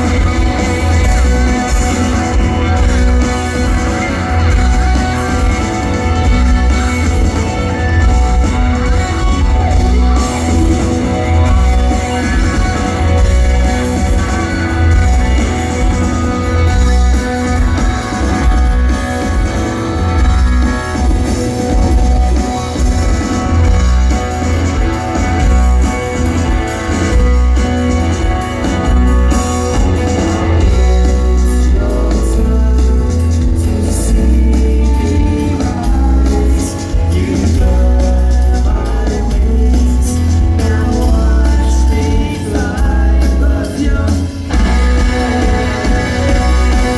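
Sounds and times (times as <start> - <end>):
live rock band playing: 0.0 - 46.9
person singing: 23.4 - 46.9.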